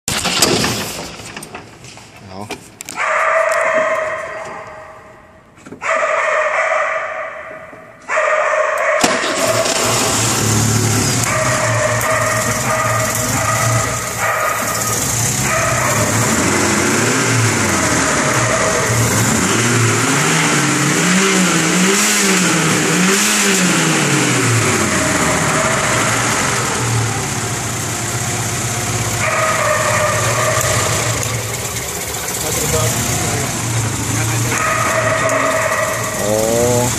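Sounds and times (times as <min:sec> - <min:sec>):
car engine idling and revving: 0:09.1 - 0:36.9.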